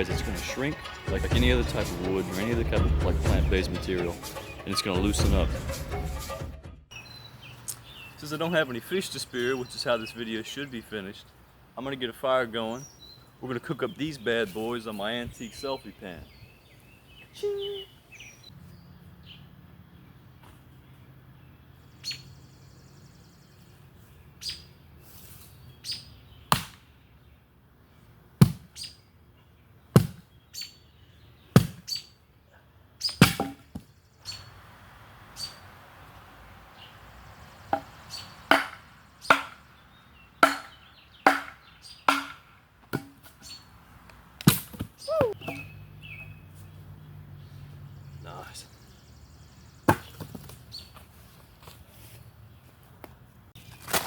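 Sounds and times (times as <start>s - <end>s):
bird chirping: 0.0s - 6.3s, 6.9s - 27.4s, 28.8s - 32.3s, 33.0s - 42.5s, 43.4s - 43.8s, 44.9s - 52.8s
wood chopping knocks: 33.2s - 33.9s, 37.7s - 39.6s, 40.4s - 43.3s, 49.9s - 50.6s.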